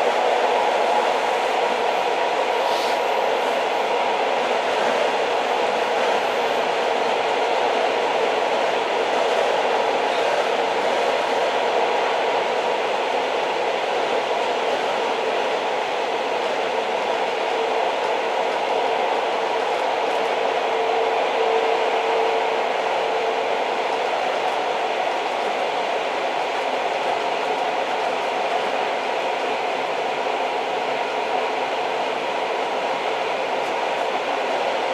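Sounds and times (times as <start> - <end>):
train rolling rumble: 0.0 - 34.9.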